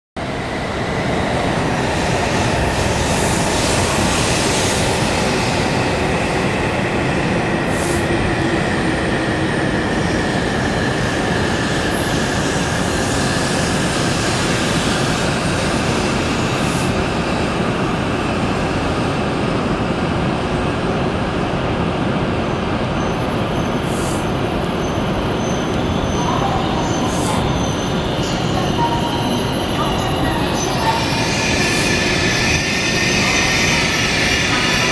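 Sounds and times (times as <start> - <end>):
electric train rumbling past: 0.2 - 34.9.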